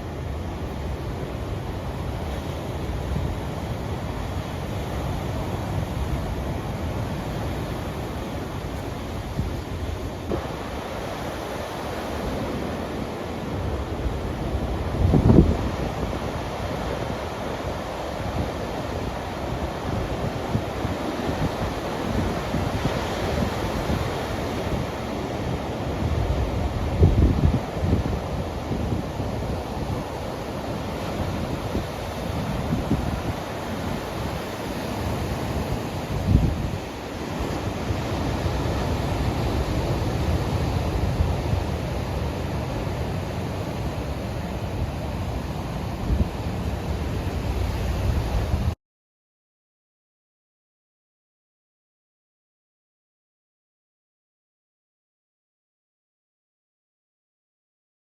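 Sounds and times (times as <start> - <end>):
ocean surf washing ashore: 0.0 - 48.8
wind buffeting microphone: 0.0 - 48.8.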